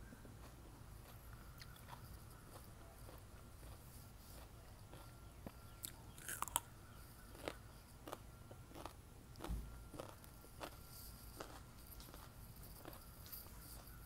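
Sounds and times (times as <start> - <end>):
crunchy chewing: 0.0 - 14.0
biting into cucumber: 0.4 - 6.7.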